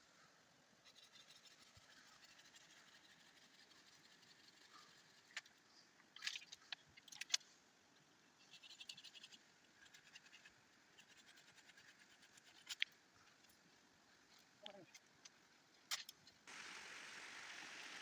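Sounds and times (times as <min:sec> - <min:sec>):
faint scratches and clicks: 0:00.8 - 0:07.5, 0:08.4 - 0:16.4.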